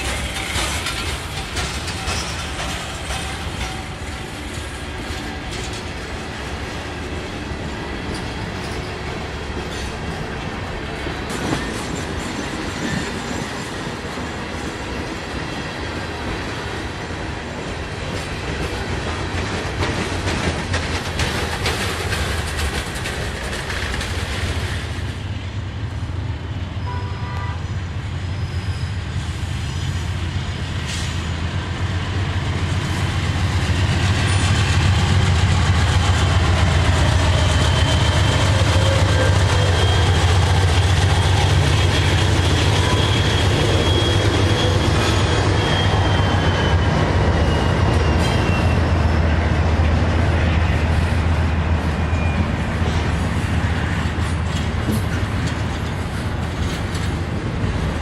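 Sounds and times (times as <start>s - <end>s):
high wheel squeal: 0.0s - 5.8s, 26.7s - 30.2s, 33.5s - 49.5s, 51.9s - 53.1s
diesel locomotive rumble: 0.0s - 58.0s
rail cars on track: 0.0s - 58.0s.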